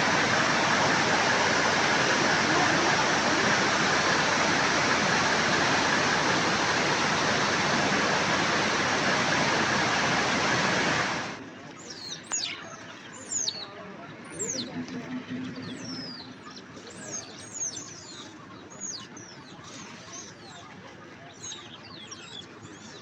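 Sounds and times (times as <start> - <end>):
flowing water rushing: 0.0 - 11.4.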